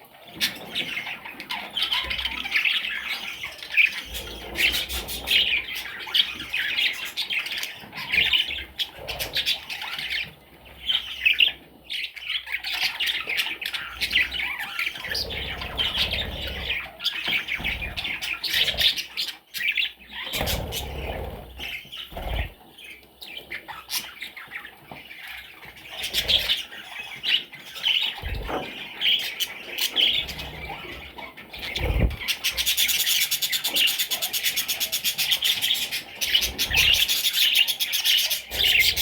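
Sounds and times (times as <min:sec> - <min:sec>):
budgerigar chattering and warbling: 0:25.9 - 0:39.0.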